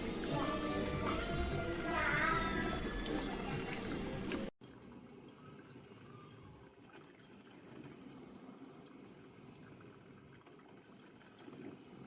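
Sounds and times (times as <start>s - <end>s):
coffee maker gurgling and dripping: 4.6s - 12.0s.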